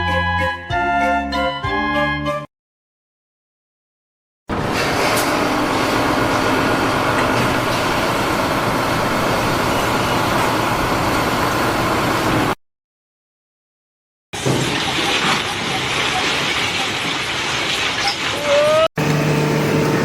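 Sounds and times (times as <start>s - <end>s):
heavy engine running: 4.5s - 12.6s, 19.0s - 20.0s.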